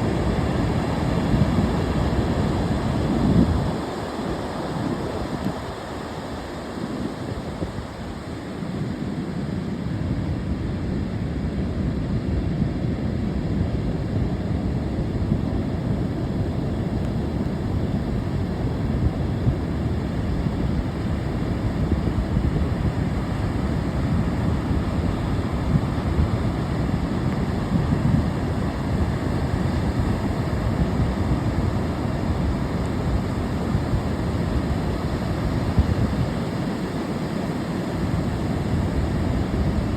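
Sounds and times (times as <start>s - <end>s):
wind buffeting microphone: 12.1s - 39.9s
ocean surf breaking: 15.5s - 39.9s.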